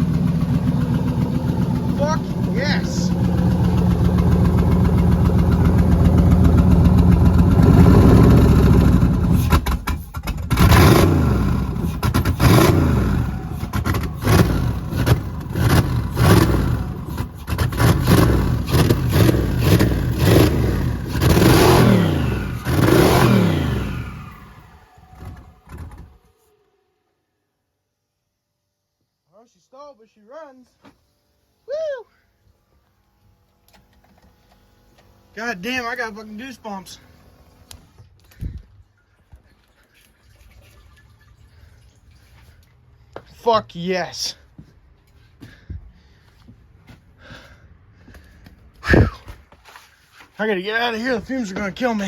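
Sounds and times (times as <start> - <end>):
car engine idling and revving: 0.0 - 26.6.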